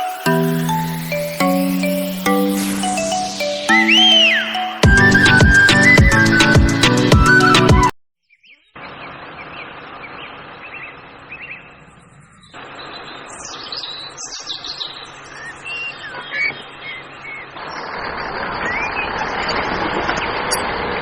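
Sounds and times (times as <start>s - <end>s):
small birds chirping: 8.3s - 20.6s.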